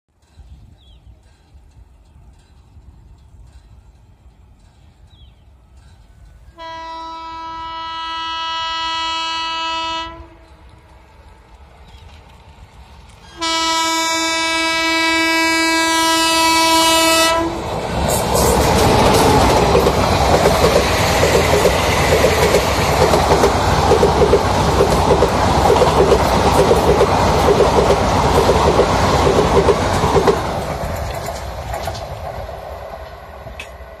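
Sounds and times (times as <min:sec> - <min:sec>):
train wheels rumbling: 0:00.1 - 0:34.0
locomotive horn blast: 0:06.5 - 0:10.5, 0:13.3 - 0:17.7
wheels clickety-clack: 0:17.8 - 0:33.8.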